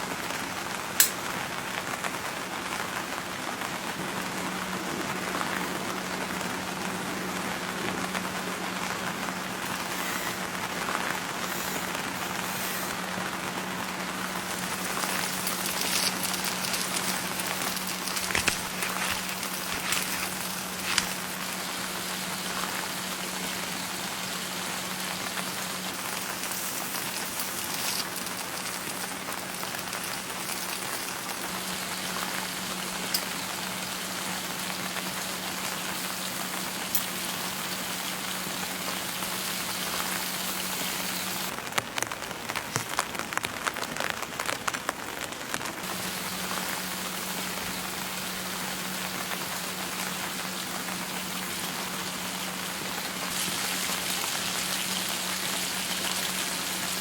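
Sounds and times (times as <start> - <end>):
steady rain patter: 0.0 - 57.0
raindrops ticking: 0.8 - 2.1, 8.0 - 57.0
constant low hum: 3.9 - 41.5.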